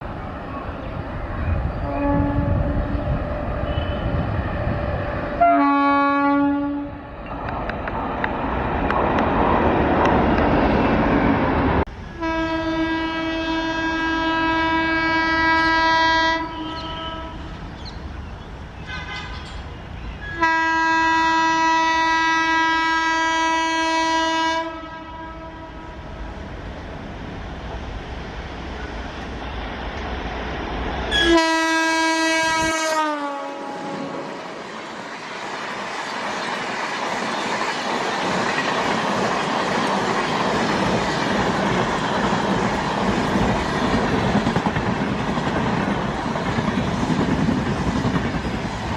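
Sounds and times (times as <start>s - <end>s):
moving train rumble: 0.0s - 48.9s
locomotive horn blasts: 1.8s - 4.2s, 5.4s - 7.1s, 12.2s - 17.5s, 18.9s - 19.5s, 20.3s - 25.9s, 31.1s - 34.2s.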